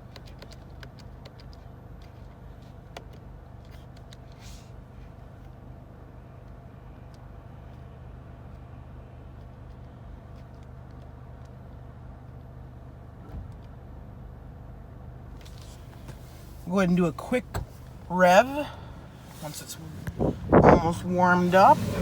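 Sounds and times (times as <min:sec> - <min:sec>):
car engine idling: 0:15.4 - 0:22.0.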